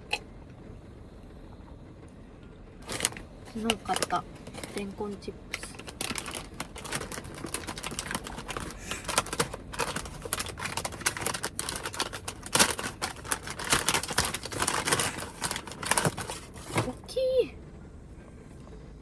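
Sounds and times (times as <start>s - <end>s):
plastic snack bag crackling: 2.8s - 17.0s.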